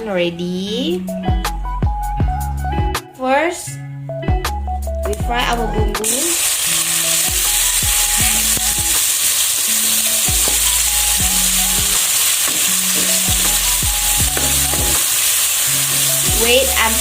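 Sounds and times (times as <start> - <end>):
spice paste sizzling in oil: 6.0 - 17.0.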